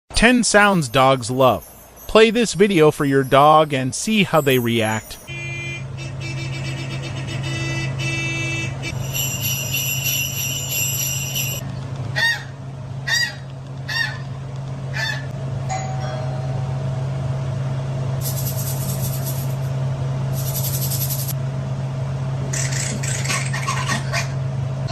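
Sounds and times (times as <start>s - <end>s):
low hum: 0.3s - 23.3s
high squeaky tones: 0.9s - 11.6s.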